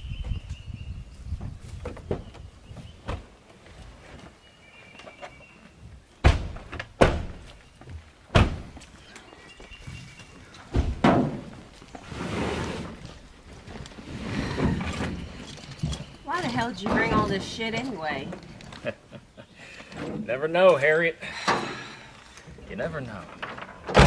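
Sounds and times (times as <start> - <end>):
heavy thunks: 6.2 - 7.5, 8.3 - 8.8, 10.7 - 11.7, 14.3 - 17.9.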